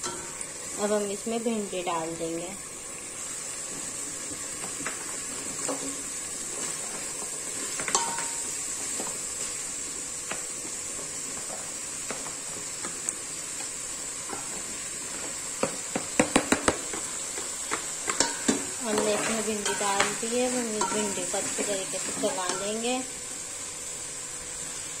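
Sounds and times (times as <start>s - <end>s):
food sizzling in oil: 0.0s - 25.0s.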